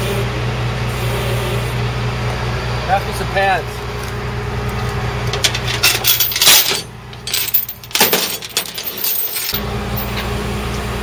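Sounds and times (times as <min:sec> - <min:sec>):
truck engine idling: 0:00.2 - 0:11.0
metal clinking and clattering: 0:05.3 - 0:10.2.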